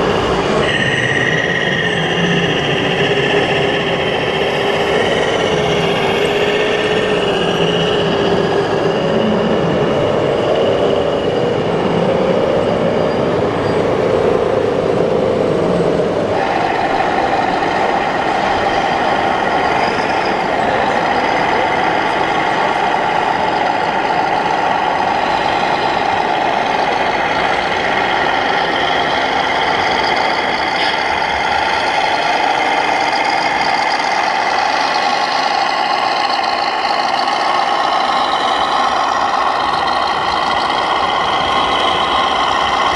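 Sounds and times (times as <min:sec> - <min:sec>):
electronic diesel truck engine sound: 0:00.0 - 0:42.9.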